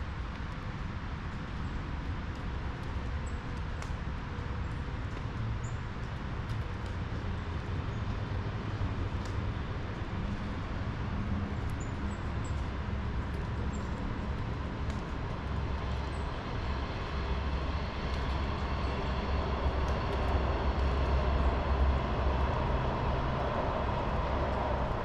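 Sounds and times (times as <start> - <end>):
passing vehicle rumble: 15.4 - 25.0.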